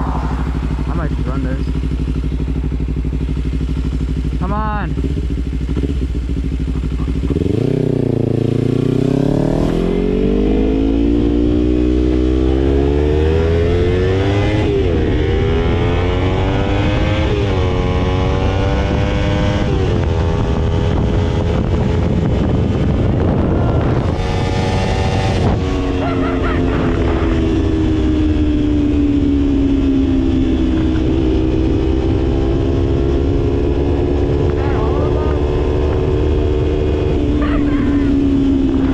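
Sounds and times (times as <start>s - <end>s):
wind rush: 0.0s - 3.0s, 18.9s - 29.4s
motorcycle engine accelerating: 0.0s - 38.9s.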